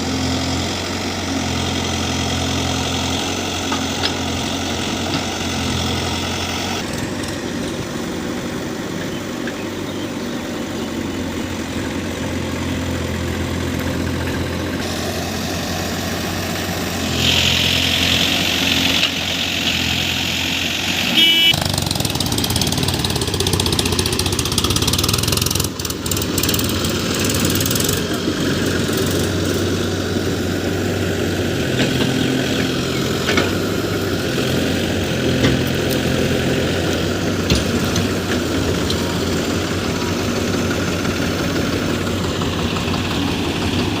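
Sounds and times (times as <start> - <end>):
diesel engine running: 0.0 - 44.0
short high tone: 21.1 - 21.6.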